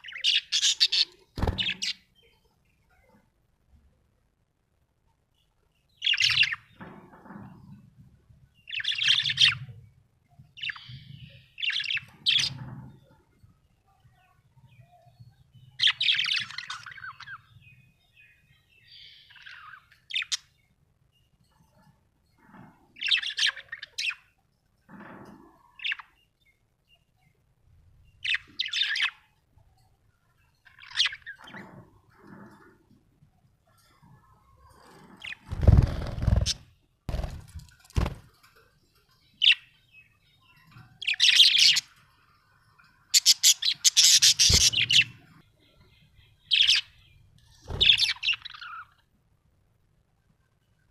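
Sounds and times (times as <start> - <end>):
parrot chirping: 0.0 - 2.0, 43.1 - 45.3.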